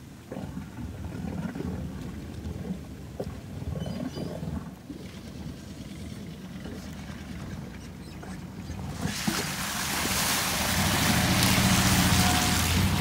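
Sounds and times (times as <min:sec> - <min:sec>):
wheels churning in mud: 0:05.4 - 0:13.0
car engine revving rough: 0:10.4 - 0:13.0.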